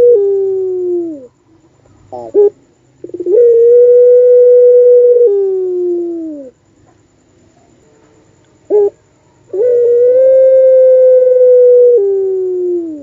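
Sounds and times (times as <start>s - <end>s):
dove cooing: 0.0s - 1.4s, 2.0s - 6.6s, 8.7s - 13.0s.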